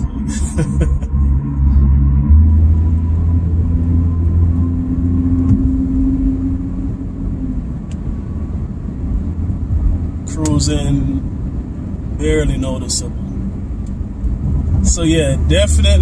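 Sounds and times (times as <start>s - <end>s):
deep car exhaust note: 0.0s - 7.8s.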